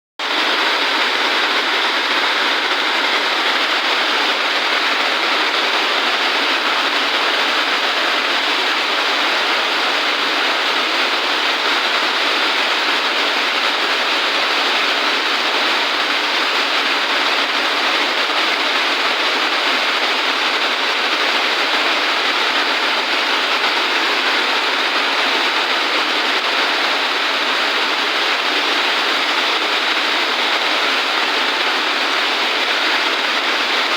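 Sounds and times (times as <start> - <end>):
heavy rain falling: 0.2 - 33.9.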